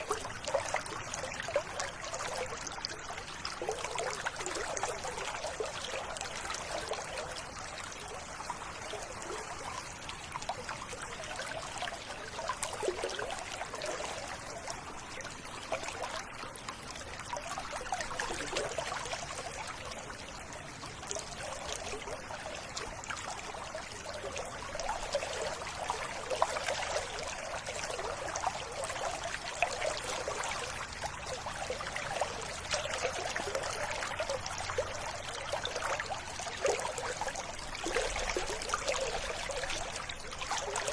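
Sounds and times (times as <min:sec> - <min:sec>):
river water splashing: 0:00.0 - 0:40.9.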